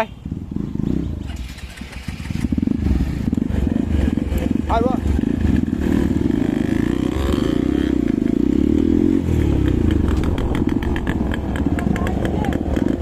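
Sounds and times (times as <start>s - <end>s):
motorcycle engine running: 0.1s - 13.0s.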